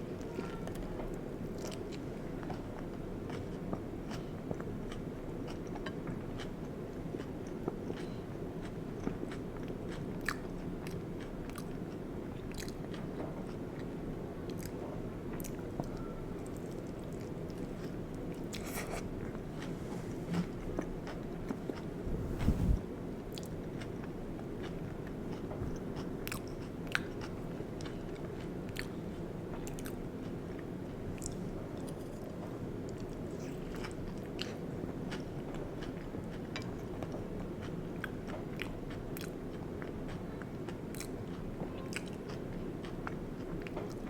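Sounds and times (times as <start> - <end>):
chewing with wet mouth sounds: 1.4 - 19.7, 23.3 - 44.0
steady low hum: 18.4 - 22.9, 25.4 - 26.3.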